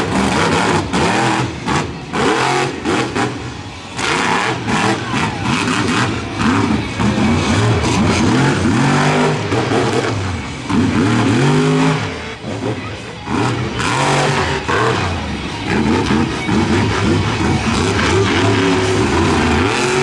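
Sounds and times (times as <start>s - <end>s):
monster truck engine revving: 0.0s - 20.0s.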